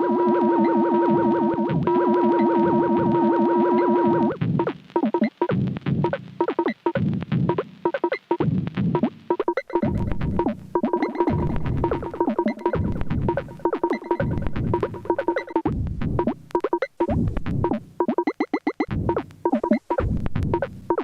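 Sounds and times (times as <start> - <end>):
drum machine pattern: 4.1 - 21.0.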